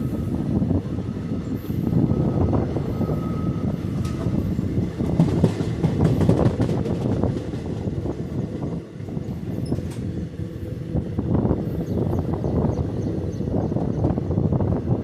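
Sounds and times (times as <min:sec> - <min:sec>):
train rumbling along track: 0:00.0 - 0:15.0
wheels clattering over rails: 0:03.9 - 0:07.9.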